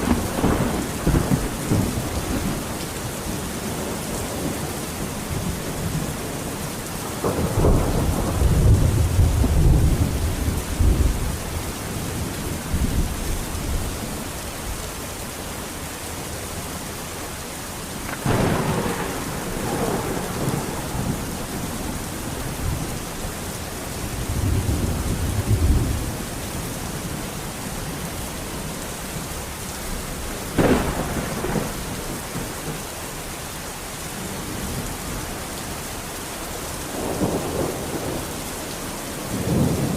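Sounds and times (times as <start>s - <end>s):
rolling thunder rumble: 0.0s - 14.2s, 18.0s - 32.9s, 36.9s - 39.9s
steady rain: 0.0s - 39.9s
sharp thunder cracks: 7.2s - 11.2s, 18.1s - 23.0s, 30.5s - 32.8s.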